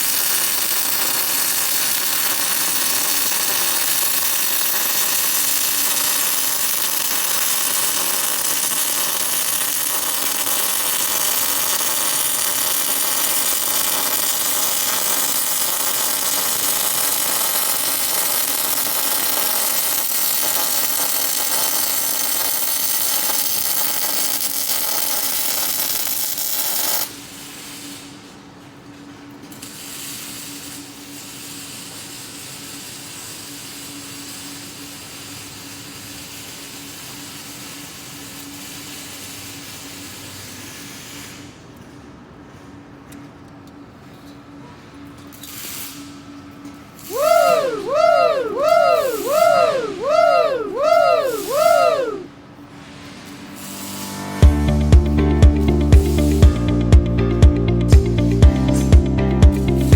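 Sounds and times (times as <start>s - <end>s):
welding arc hissing: 0.0s - 28.3s, 29.6s - 41.5s, 50.3s - 52.0s, 53.4s - 55.0s, 58.0s - 59.9s
steady hum: 53.5s - 59.9s.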